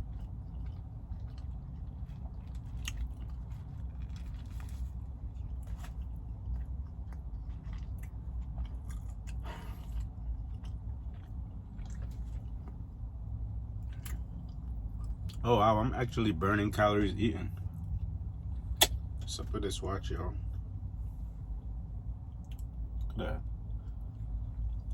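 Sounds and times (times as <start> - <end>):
chewing and biting food: 0.0 - 15.5, 21.6 - 24.9
steady low hum: 0.0 - 24.9
small crunches: 0.1 - 12.8.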